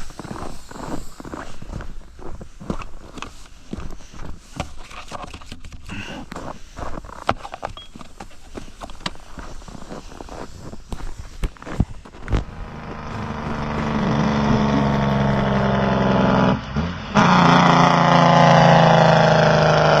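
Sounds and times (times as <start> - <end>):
vehicle engine under load: 12.1 - 20.0.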